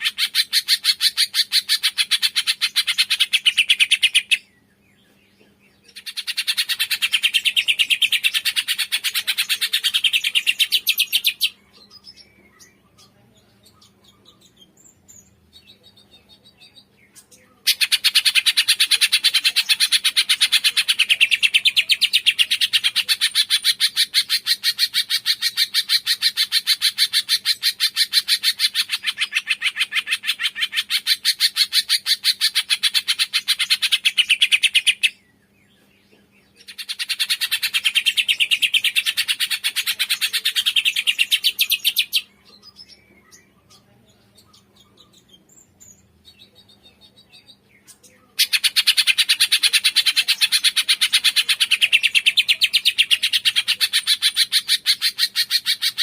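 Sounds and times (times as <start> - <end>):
faint bird calls: 0.0 - 56.0
songbird chirping: 0.0 - 56.0.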